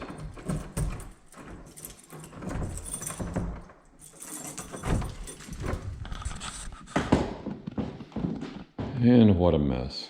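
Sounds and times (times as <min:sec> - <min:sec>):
door unlocked and opened: 0:00.0 - 0:06.4
keys jangling: 0:00.0 - 0:06.5.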